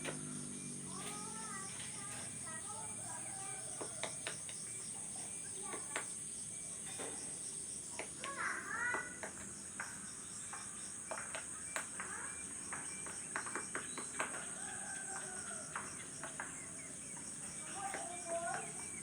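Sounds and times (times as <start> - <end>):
bird chirping calls: 0.0 - 19.0
insects chorus: 0.0 - 19.0
sharp taps: 7.9 - 18.8.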